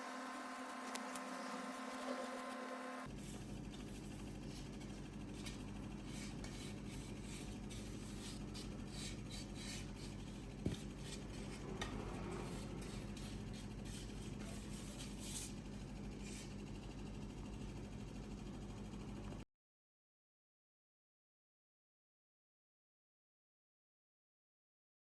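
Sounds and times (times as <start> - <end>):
hand rubbing wood: 0.7 - 15.5.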